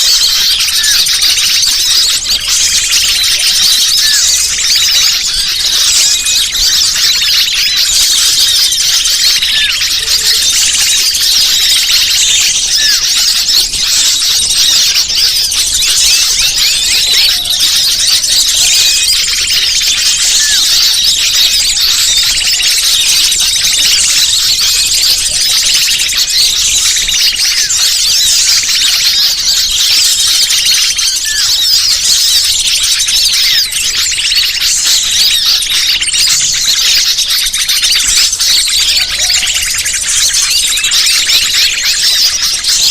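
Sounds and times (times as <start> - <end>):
small birds chattering: 0.0 - 42.9.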